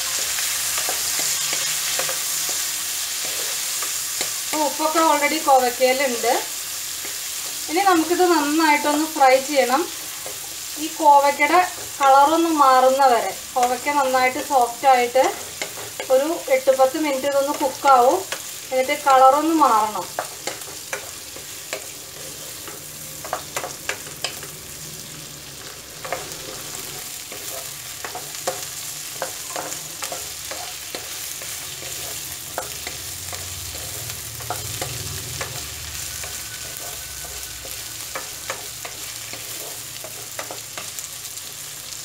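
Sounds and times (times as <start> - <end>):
spatula scraping and tapping pan: 0.0 - 4.8, 13.6 - 16.4, 20.0 - 24.6, 25.6 - 41.6
vegetables sizzling in oil: 0.0 - 42.0.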